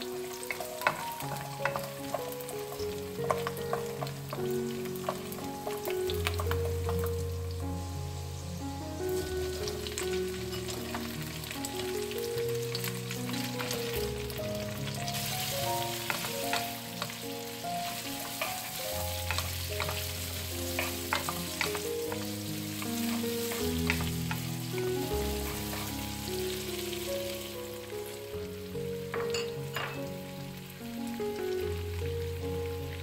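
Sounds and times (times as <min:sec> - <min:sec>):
food sizzling in a pan: 0:00.0 - 0:33.0
soft background music: 0:00.0 - 0:33.0
wooden spatula scraping a pan: 0:17.8 - 0:24.5.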